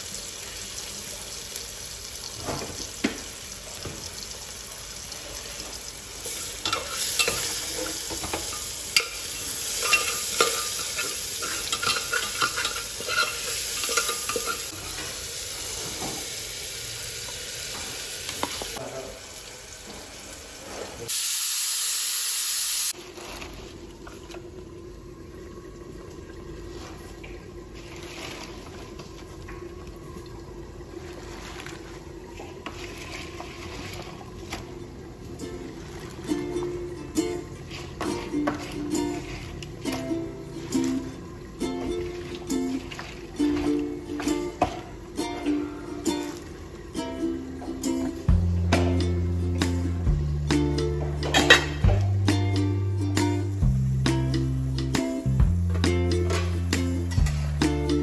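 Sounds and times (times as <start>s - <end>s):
spices frying in oil: 0.0s - 23.0s
spoon stirring and clicking on pot: 8.1s - 14.7s
loud steady hiss: 21.0s - 23.0s.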